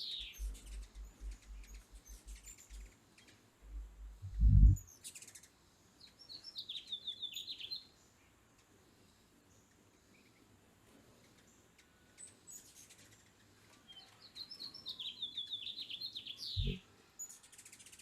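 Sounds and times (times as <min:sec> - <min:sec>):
hummingbirds twittering: 0:00.0 - 0:07.8, 0:14.2 - 0:18.0
hummingbird wings humming: 0:00.1 - 0:05.4.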